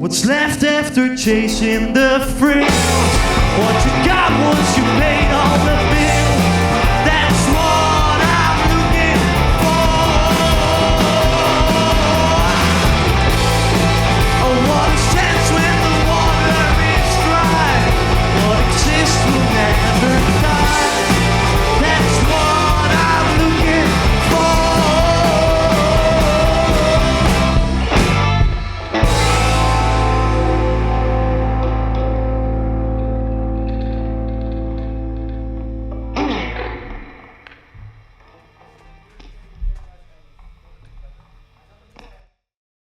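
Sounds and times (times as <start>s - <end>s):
person singing: 0.0s - 28.0s
rock band playing: 0.0s - 37.8s.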